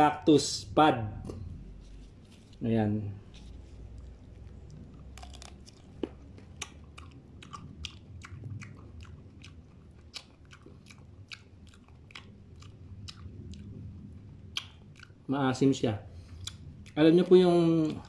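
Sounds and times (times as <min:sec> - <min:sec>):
person chewing crunchy food: 0:03.2 - 0:15.3, 0:16.2 - 0:18.0.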